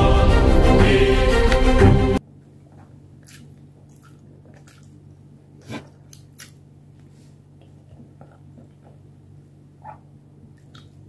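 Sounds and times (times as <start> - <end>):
wet chewing mouth sounds: 3.1 - 9.2.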